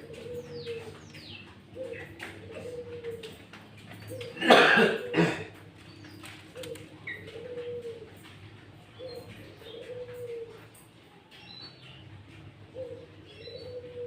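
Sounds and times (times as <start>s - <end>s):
dove cooing: 0.0s - 14.0s.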